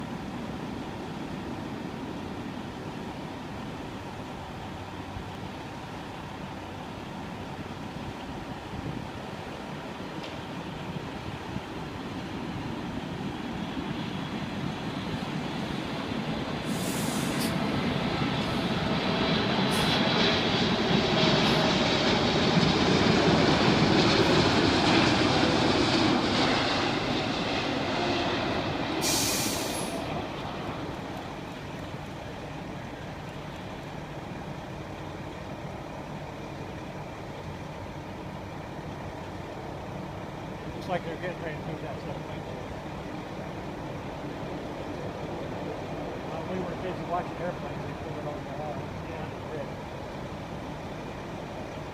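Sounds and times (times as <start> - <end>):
faint engine whine: 0.0 - 51.9
jet airliner flying past: 8.9 - 36.4, 40.2 - 51.9.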